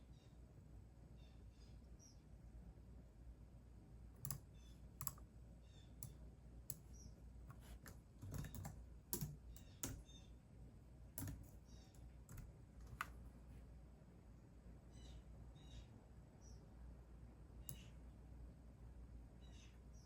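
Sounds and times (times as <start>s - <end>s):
keyboard typing: 4.2s - 5.2s, 7.5s - 10.1s, 11.2s - 13.3s.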